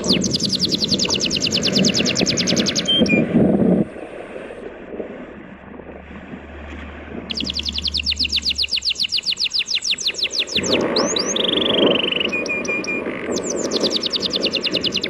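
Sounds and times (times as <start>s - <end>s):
bird trilling: 0.0s - 3.3s, 7.3s - 15.0s
faint low drone: 0.0s - 13.5s
surf and wind rushing: 0.0s - 15.0s.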